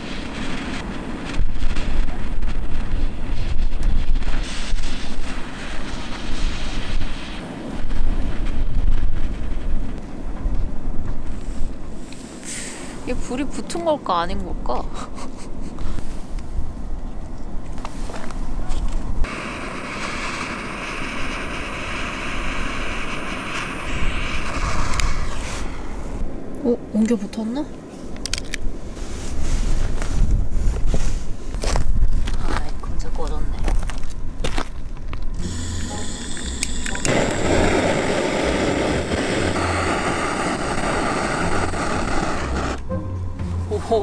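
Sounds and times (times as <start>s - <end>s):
gas torch flame roaring hiss: 0.0s - 10.0s, 19.2s - 26.5s, 35.4s - 42.9s
faint crackles: 17.8s - 26.2s.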